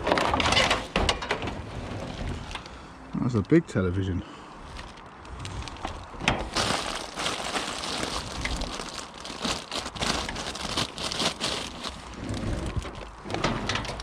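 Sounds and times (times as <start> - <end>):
rubbish rustling and crackling: 4.6 - 14.0.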